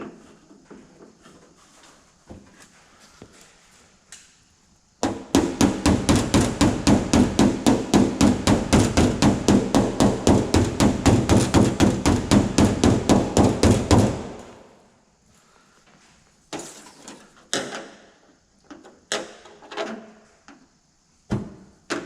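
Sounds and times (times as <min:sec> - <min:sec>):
hammer striking sheet steel: 0:05.1 - 0:14.6.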